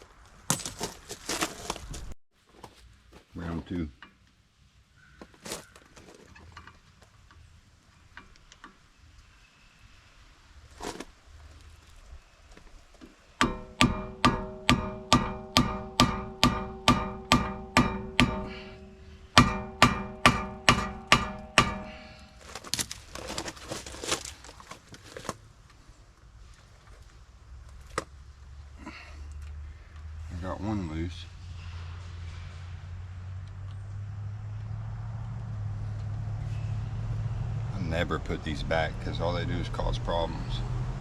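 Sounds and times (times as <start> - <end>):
hammer blows on ringing steel: 13.4 - 22.4.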